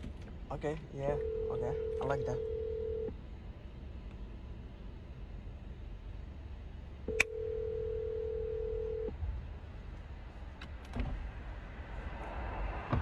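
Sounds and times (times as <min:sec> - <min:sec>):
phone ringback tone: 0:01.2 - 0:03.1, 0:07.1 - 0:09.1.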